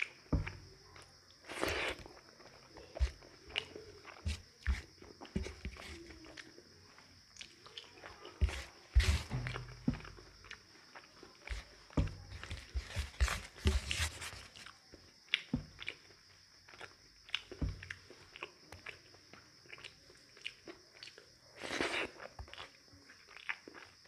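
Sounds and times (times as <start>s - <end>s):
rustling: 8.4s - 10.2s, 12.3s - 14.7s
wet chewing clicks: 14.4s - 24.0s.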